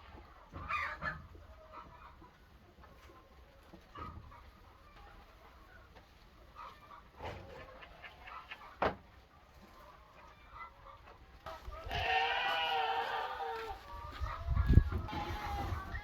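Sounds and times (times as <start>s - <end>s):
chickens clucking: 0.0s - 16.0s
drawn-out pitched call: 11.9s - 13.7s.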